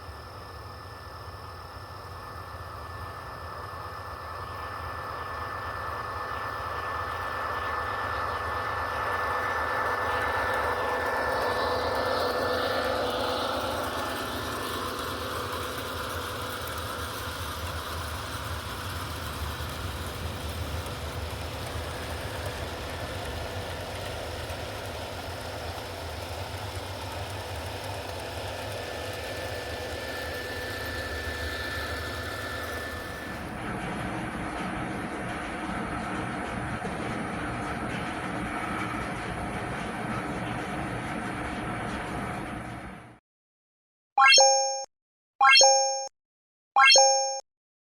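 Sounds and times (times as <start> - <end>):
model train motor and wheels hum: 0.0 - 43.2.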